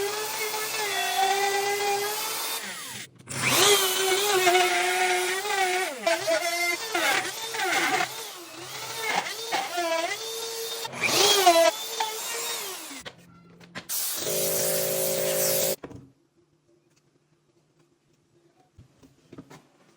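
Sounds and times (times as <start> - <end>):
router motor whining: 0.0 - 13.0, 14.1 - 15.8.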